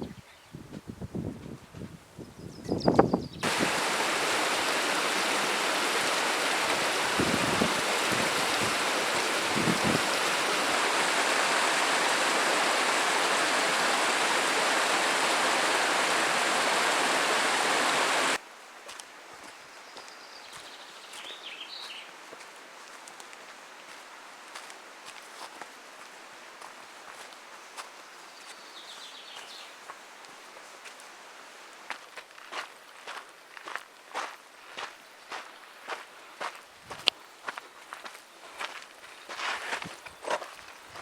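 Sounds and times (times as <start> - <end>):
mountain stream rushing: 3.4 - 18.4.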